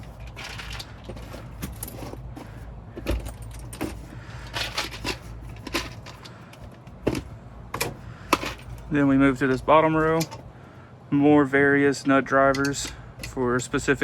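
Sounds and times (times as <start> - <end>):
metal tools clinking into bag: 0.0 - 6.3
low steady hum: 0.0 - 14.0.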